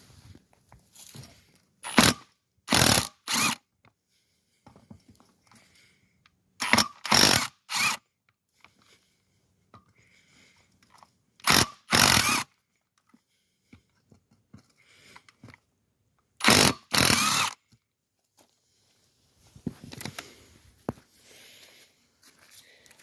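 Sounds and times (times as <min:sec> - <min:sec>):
power tool short bursts: 0:16.4 - 0:17.6.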